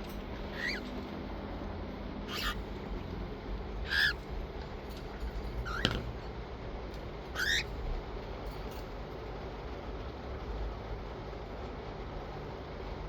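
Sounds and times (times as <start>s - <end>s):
parrot squawking: 0.5s - 0.9s, 2.3s - 2.7s, 3.8s - 4.2s, 5.6s - 6.0s, 7.4s - 7.8s.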